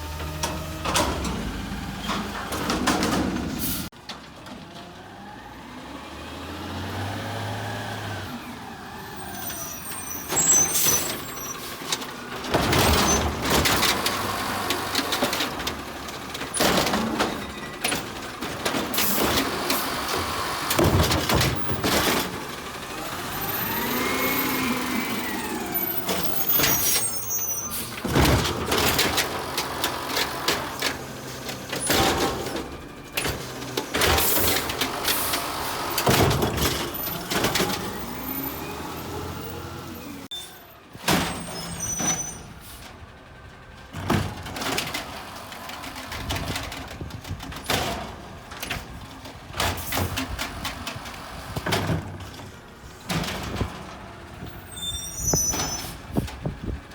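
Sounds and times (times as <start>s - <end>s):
garbage truck engine revving: 0.0s - 3.9s, 4.5s - 56.9s
air brakes hissing: 41.3s - 43.0s.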